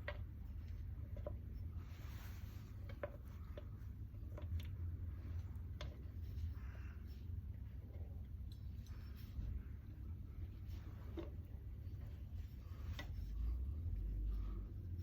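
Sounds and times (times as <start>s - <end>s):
steady low hum: 0.0s - 15.0s
soft rubbing: 0.2s - 15.0s
light clicks and taps: 2.6s - 6.6s.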